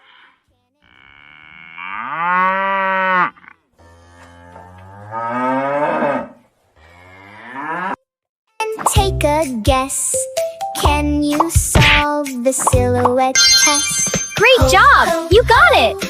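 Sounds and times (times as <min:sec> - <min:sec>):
cow mooing: 0:00.0 - 0:08.0.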